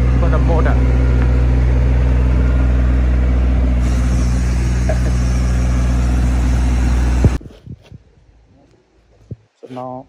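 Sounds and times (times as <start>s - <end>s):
diesel engine running: 0.0s - 7.4s.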